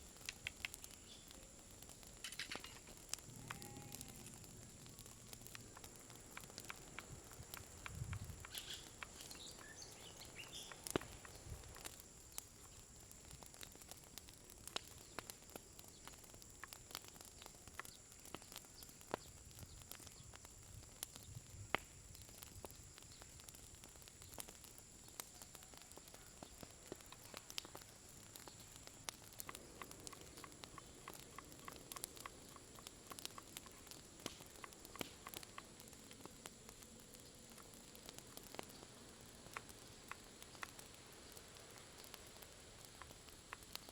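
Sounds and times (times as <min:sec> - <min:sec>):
campfire crackling and popping: 0:00.0 - 0:43.9.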